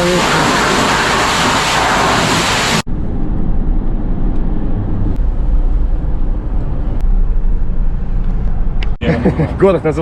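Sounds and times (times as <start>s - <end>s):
car wash equipment hissing: 0.0s - 2.9s
low vehicle rumble: 1.8s - 9.9s.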